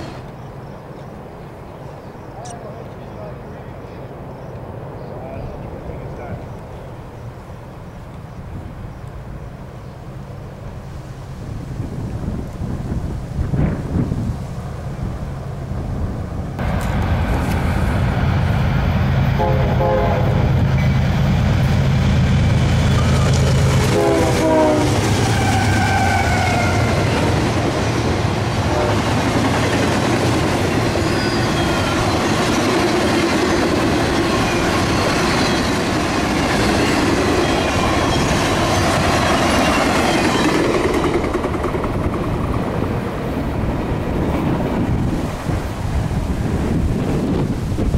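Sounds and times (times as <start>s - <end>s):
locomotive engine hum: 14.6s - 47.9s
train horn blast: 19.2s - 20.6s, 22.9s - 27.3s, 28.6s - 29.1s
flatcars rolling clickety-clack: 38.2s - 42.9s.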